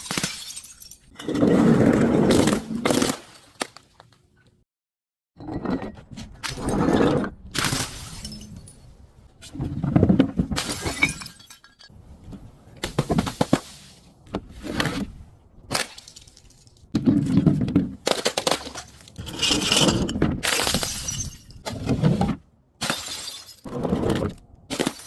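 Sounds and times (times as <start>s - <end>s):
glass bottles crushing: 0.0s - 1.1s, 10.6s - 11.9s, 18.0s - 21.6s, 22.8s - 23.7s.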